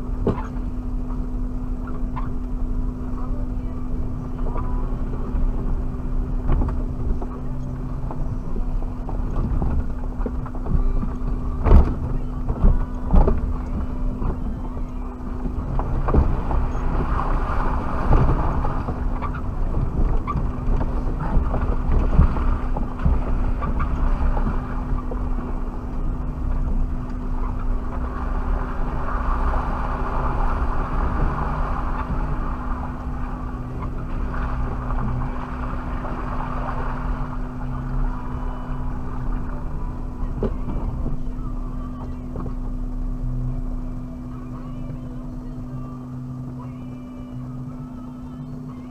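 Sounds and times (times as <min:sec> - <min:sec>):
engine and drivetrain rumble: 0:00.0 - 0:48.9.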